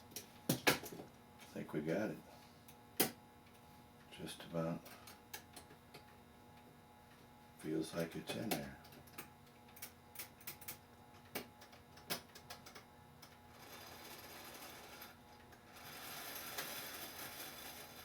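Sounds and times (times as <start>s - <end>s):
steady mechanical whir: 13.5s - 18.0s.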